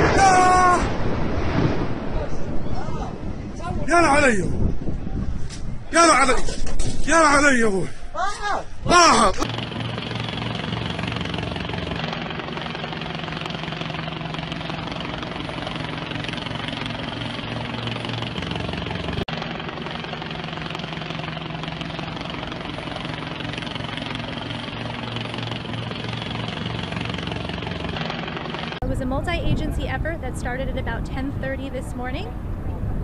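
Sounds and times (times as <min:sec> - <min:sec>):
engine drone with low hum: 0:08.7 - 0:33.0.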